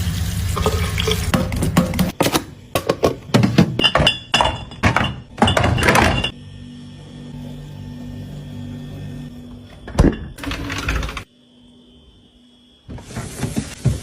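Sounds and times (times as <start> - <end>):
containers knocking and clinking: 0.6 - 6.3.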